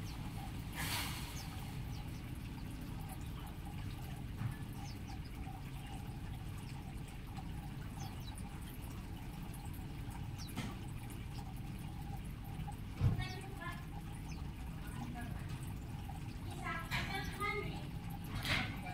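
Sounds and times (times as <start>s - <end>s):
low background rumble: 0.0s - 18.9s
small birds chirping: 0.0s - 18.9s.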